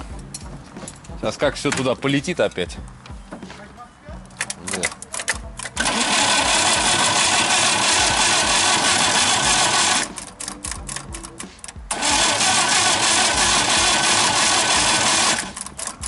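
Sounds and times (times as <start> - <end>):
unsilenced car engine running: 5.5 - 16.0.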